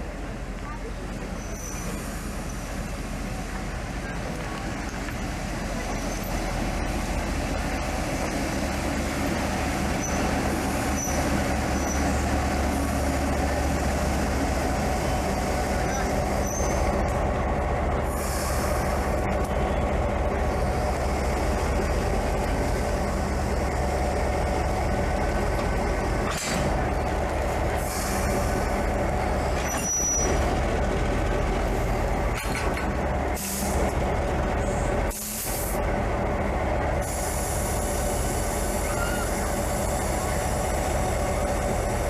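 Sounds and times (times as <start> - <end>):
train wheels rumbling: 0.0 - 42.0
air brake hisses: 18.1 - 19.0, 35.1 - 35.8.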